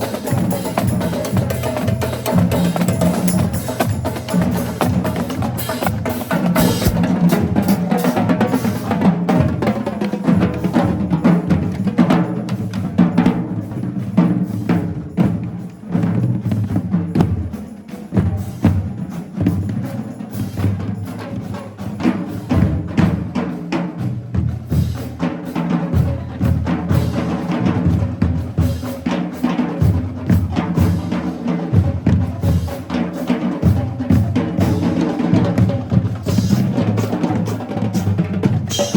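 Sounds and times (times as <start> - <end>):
rapid snare drum strokes: 0.0 - 38.9
pounding bass drums: 0.3 - 7.7
drum rim clicks: 6.6 - 7.0.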